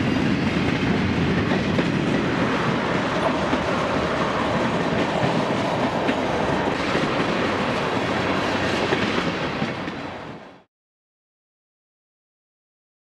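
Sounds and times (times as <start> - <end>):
wheels clacking over rails: 0.0 - 10.4
railroad cars rolling on track: 0.0 - 10.7.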